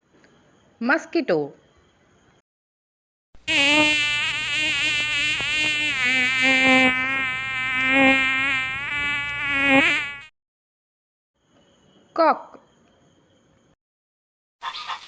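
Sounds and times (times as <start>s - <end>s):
mosquito wingbeat whine: 3.5s - 10.3s.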